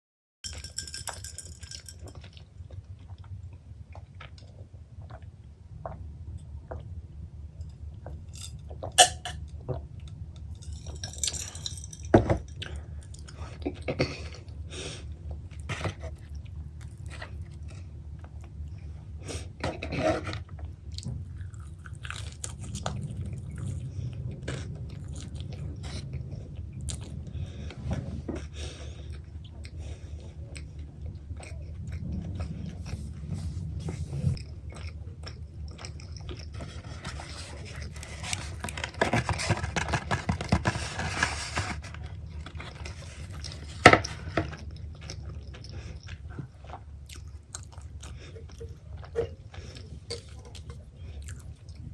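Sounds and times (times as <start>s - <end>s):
low steady hum: 0.4s - 51.9s
chewing and biting pizza: 12.6s - 33.4s, 34.3s - 51.9s.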